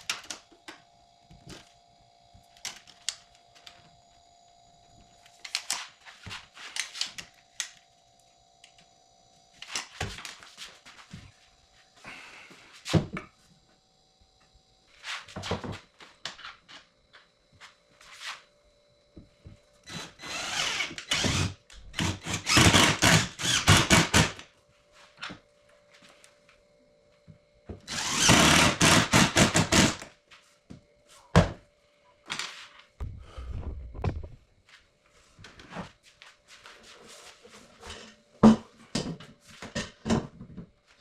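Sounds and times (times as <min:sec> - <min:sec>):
power tool running: 0:19.8 - 0:24.4, 0:27.9 - 0:30.1.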